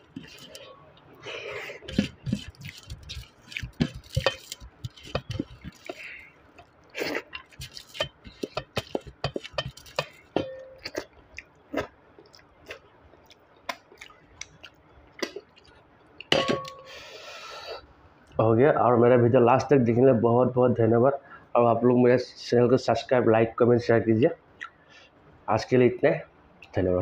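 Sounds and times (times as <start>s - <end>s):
person chewing and lip smacking: 0.0s - 16.3s.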